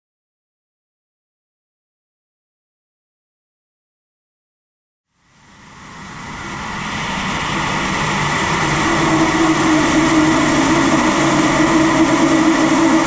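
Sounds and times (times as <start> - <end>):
steady hum: 5.1 - 13.0
rocket engine roaring: 5.4 - 13.0.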